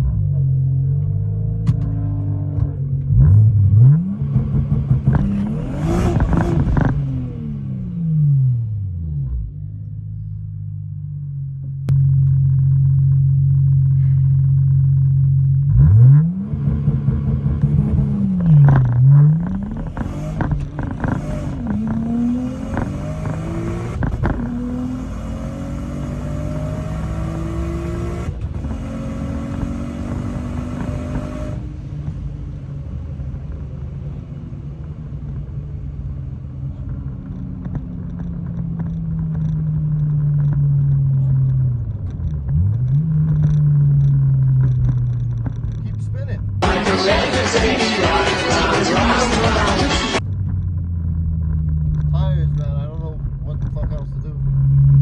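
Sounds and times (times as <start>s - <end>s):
car engine idling and revving: 0.0s - 55.0s
car accelerating through gears: 1.6s - 8.8s, 15.7s - 31.7s, 46.6s - 50.2s.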